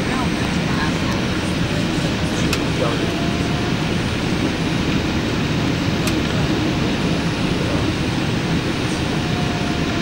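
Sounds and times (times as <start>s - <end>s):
jet engine and airflow rush: 0.0s - 10.0s.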